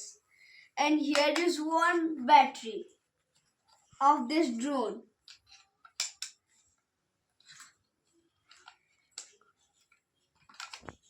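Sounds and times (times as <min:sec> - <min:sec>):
plastic parts clicking and rustling: 0:05.2 - 0:06.5, 0:07.4 - 0:11.0.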